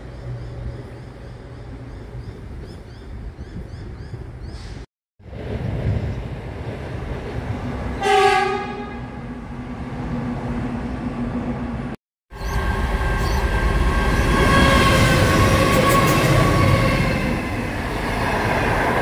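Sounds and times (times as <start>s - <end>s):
diesel train engine: 4.6s - 19.0s
train horn: 8.0s - 9.2s, 12.7s - 17.4s
electric train passing: 8.9s - 19.0s.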